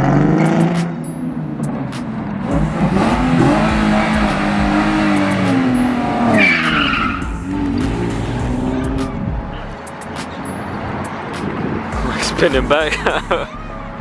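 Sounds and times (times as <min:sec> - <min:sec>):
car engine revving: 0:00.0 - 0:14.0
tire squeal: 0:02.9 - 0:08.2.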